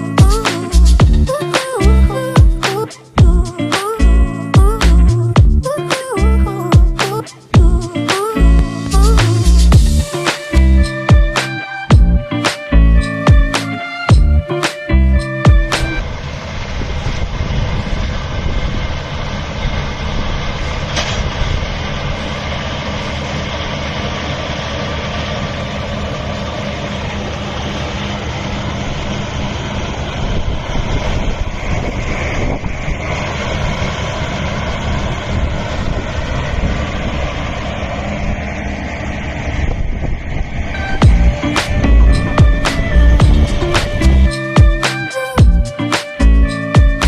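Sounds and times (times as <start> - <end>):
music: 0.0 - 16.0, 40.8 - 47.0
farm machine engine running: 15.7 - 44.6.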